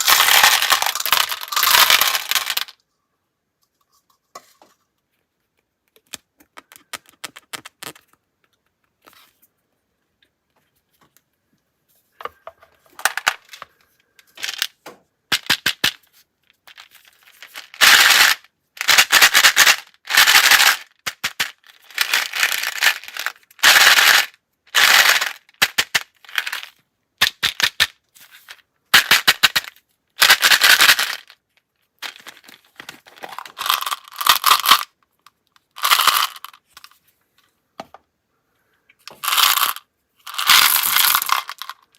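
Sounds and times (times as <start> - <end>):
small hard objects clicking: 0.0 - 2.9, 5.9 - 8.7, 12.4 - 31.4, 32.0 - 36.9, 39.1 - 41.9.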